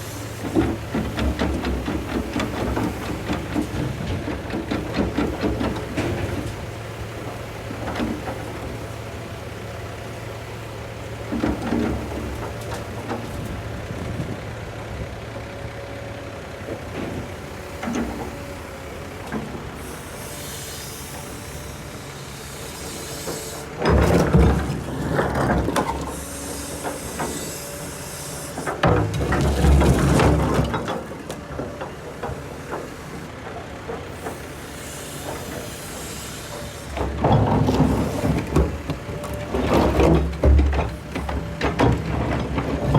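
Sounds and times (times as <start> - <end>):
excavator engine running: 0.0 - 42.9
knocks and clunks: 37.0 - 42.9.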